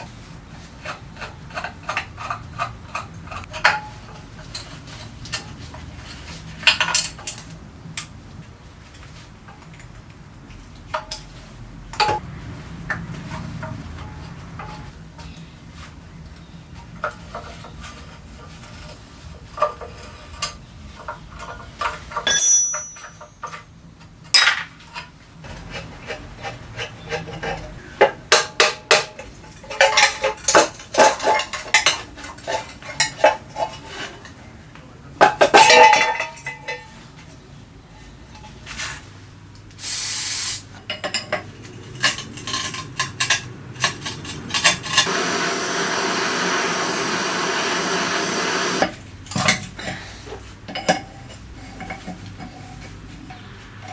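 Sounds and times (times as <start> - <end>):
metal tools clinking and knocking: 21.4 - 23.7, 40.9 - 45.1
short hiss: 39.8 - 40.7
steady rushing noise: 41.6 - 48.9.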